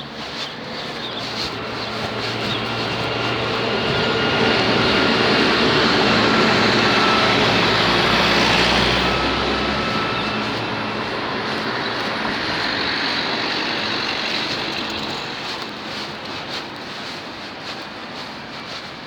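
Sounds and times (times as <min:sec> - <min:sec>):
steady traffic rush: 0:00.0 - 0:19.0
vehicle passing with low rumble: 0:01.3 - 0:16.4.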